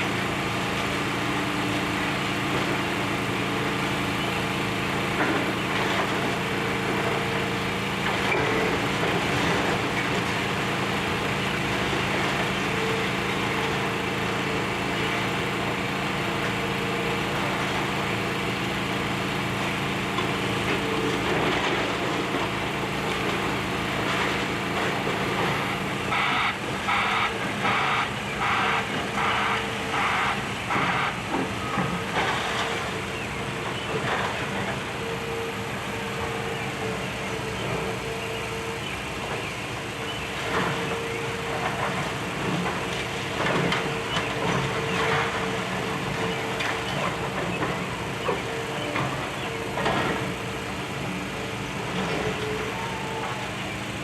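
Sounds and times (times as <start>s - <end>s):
excavator diesel engine running: 0.0s - 54.0s
reversing alarm beeping: 26.1s - 31.9s.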